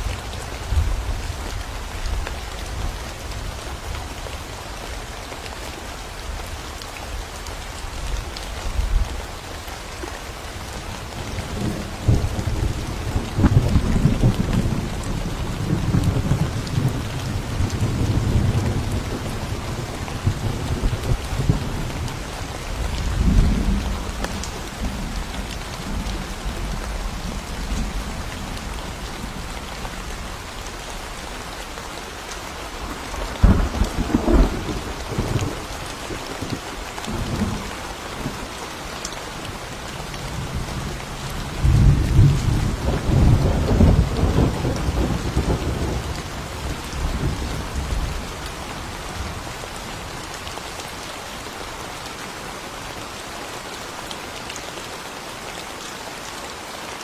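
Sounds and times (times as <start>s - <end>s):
steady rain in forest: 0.0s - 57.0s
thunder rumbling: 11.2s - 30.5s, 32.8s - 38.5s, 39.8s - 48.4s.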